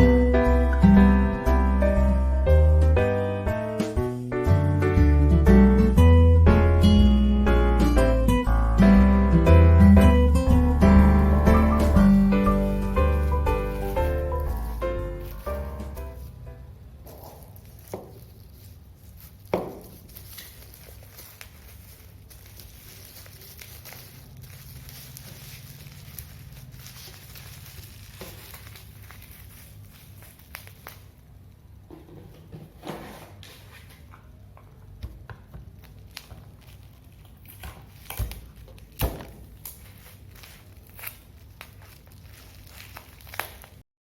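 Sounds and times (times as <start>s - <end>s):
steady low hum: 9.8s - 17.8s
rustling of handled things: 10.6s - 43.8s.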